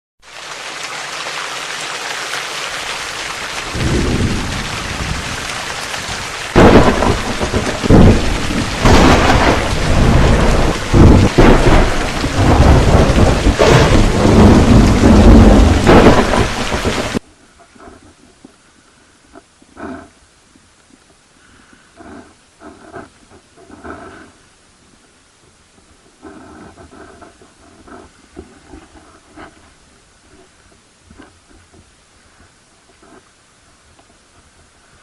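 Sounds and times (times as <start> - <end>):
steady rain hiss: 0.2 - 35.0
loud thunderclaps and rumbles: 3.6 - 17.2.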